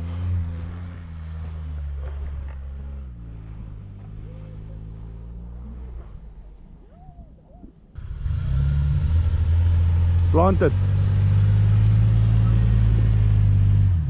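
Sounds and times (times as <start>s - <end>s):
vehicle engine running under load: 0.0s - 6.2s, 8.0s - 14.0s.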